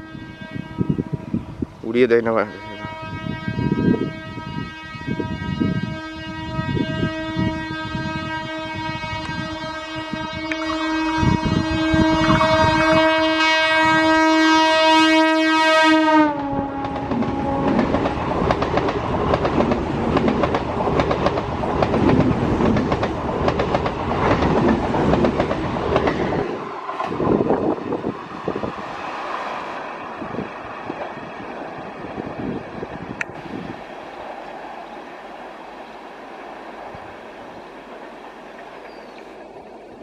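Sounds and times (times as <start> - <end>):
train horn: 0.0 - 18.9
train wheels clattering on rails: 16.8 - 28.2.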